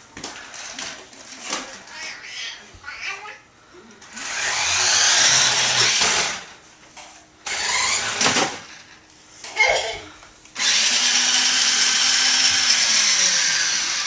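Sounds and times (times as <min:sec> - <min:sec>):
toy truck motor whirring: 0:04.2 - 0:06.5, 0:07.4 - 0:08.7, 0:10.6 - 0:14.0.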